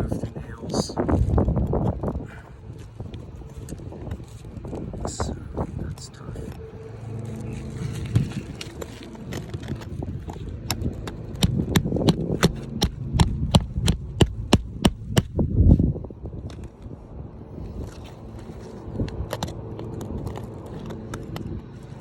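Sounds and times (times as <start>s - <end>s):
tool tapping on roof nails: 11.0s - 15.3s.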